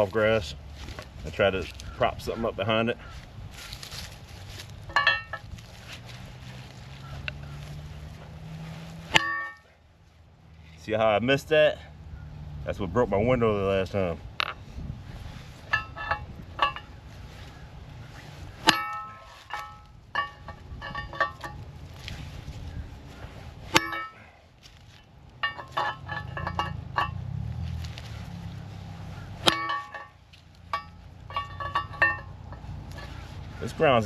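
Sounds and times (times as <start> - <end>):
metal clinks and taps: 4.8 - 5.6, 9.1 - 9.7, 15.6 - 17.0, 18.6 - 21.7, 23.7 - 27.7, 29.4 - 33.2
hammer striking steel: 9.1 - 9.7, 18.6 - 21.6, 23.7 - 24.2, 29.4 - 32.4.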